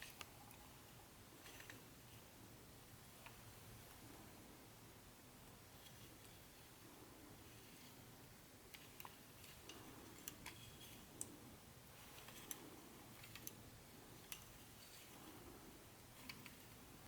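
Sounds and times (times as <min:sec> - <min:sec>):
light clicks and taps handling parts: 0:08.7 - 0:11.4, 0:12.0 - 0:15.4.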